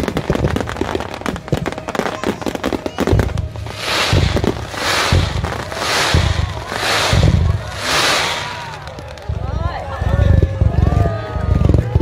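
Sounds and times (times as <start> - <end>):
fireworks crackling: 0.0 - 10.2
fireworks hissing: 3.0 - 9.4
fireworks deep thumps: 3.1 - 9.4.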